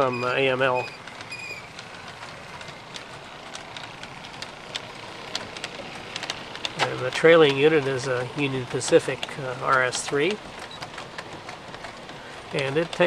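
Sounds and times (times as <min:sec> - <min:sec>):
model train wheels rolling: 0:00.0 - 0:13.0
sharp clicks on track: 0:00.0 - 0:13.0.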